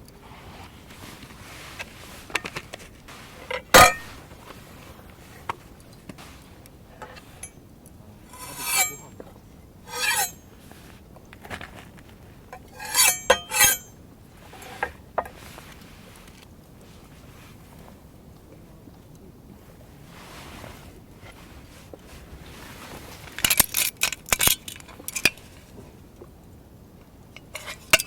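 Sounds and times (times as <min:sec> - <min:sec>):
metal utensils scraping and rattling: 0:03.4 - 0:04.2, 0:08.3 - 0:09.2, 0:09.9 - 0:10.4, 0:12.6 - 0:14.0, 0:27.5 - 0:28.0
metal cookware clinking: 0:03.8 - 0:04.2, 0:08.3 - 0:09.1, 0:09.9 - 0:10.4, 0:12.7 - 0:13.9.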